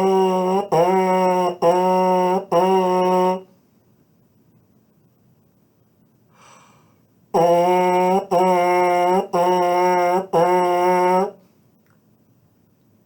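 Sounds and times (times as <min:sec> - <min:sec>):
buzzed brass mouthpiece notes: 0:00.0 - 0:03.5, 0:07.3 - 0:11.4
breath in: 0:06.3 - 0:07.0.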